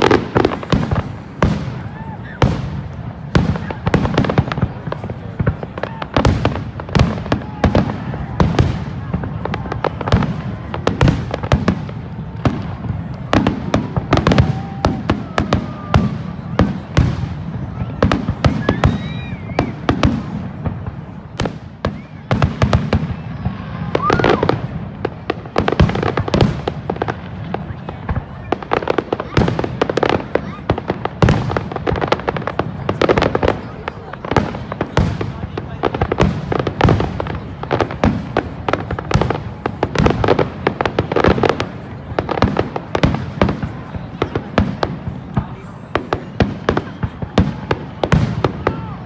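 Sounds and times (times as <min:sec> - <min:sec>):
fireworks whistling: 0:00.0 - 0:26.7
fireworks bangs: 0:00.0 - 0:49.0.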